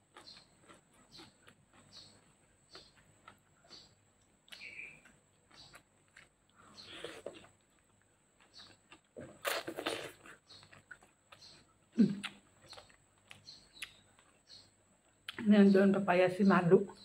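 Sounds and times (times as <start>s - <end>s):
wet chewing: 0.0s - 15.4s
biting into chicken: 8.5s - 10.8s.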